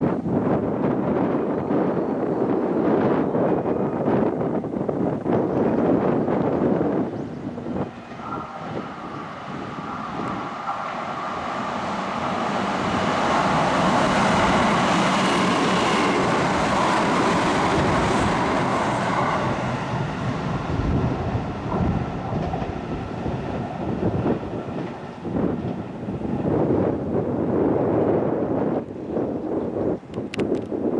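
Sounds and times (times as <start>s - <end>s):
train passing at speed: 0.0s - 29.2s
wheels clacking over rail joints: 5.5s - 27.2s.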